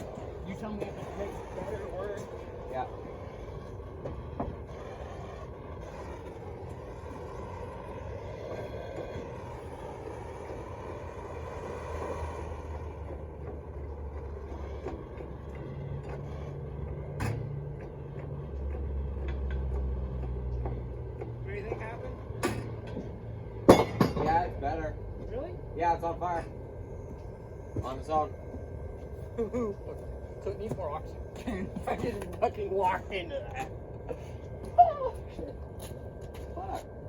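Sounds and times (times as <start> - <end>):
electric blower fan whooshing: 0.0 - 23.6
low hum: 0.0 - 37.0.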